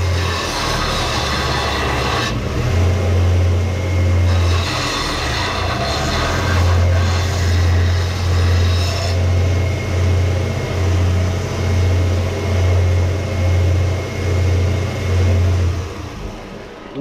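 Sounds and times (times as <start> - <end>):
abrasive grinding on steel: 0.0 - 11.0
power tool motor humming: 0.0 - 16.7.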